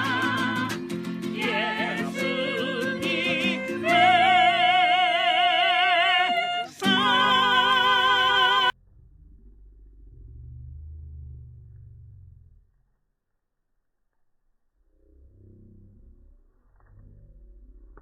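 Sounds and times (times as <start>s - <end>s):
operatic singing voice: 0.0s - 8.8s.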